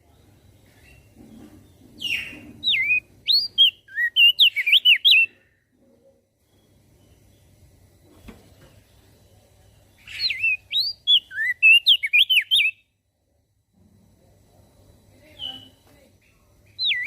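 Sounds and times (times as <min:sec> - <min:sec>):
bird singing whistled notes: 0:02.0 - 0:05.4, 0:10.0 - 0:12.9, 0:15.2 - 0:17.0.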